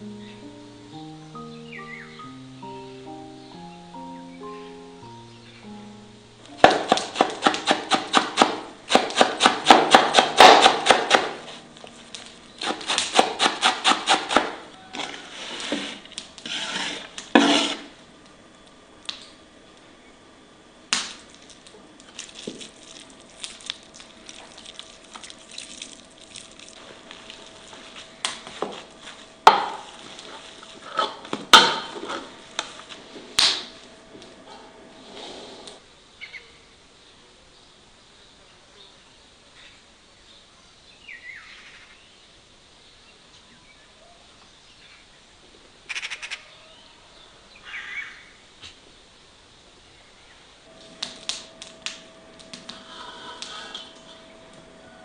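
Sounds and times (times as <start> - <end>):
knife chopping on wooden board: 6.6 - 11.5, 12.6 - 14.6, 29.5 - 29.9.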